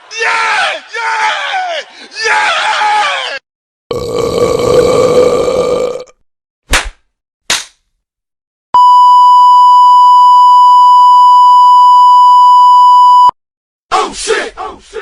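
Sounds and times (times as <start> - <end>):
loud steady censor beep: 8.8 - 13.4.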